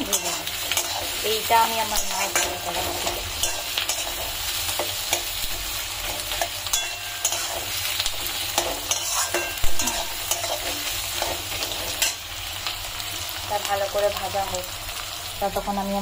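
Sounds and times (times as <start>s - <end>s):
metal spatula scraping pan: 0.0s - 12.3s
onions sizzling in hot oil: 0.0s - 16.0s.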